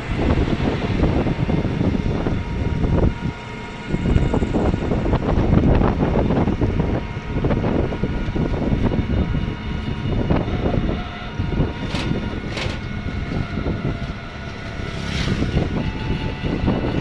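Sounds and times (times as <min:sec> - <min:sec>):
vehicle rumbling: 0:00.0 - 0:17.0.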